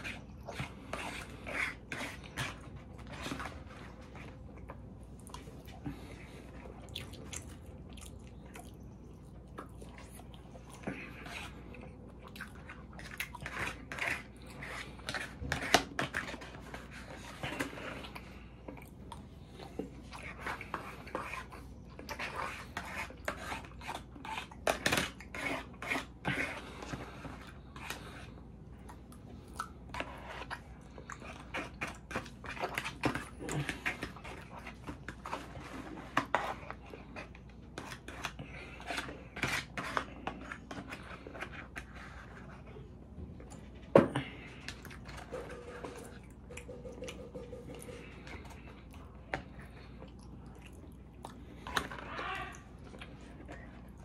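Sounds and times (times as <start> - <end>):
plastic fork scraping container: 0.0 - 4.5, 12.6 - 18.8, 19.7 - 28.4, 29.9 - 42.8, 44.2 - 50.0
person chewing: 0.4 - 41.4, 43.4 - 54.0.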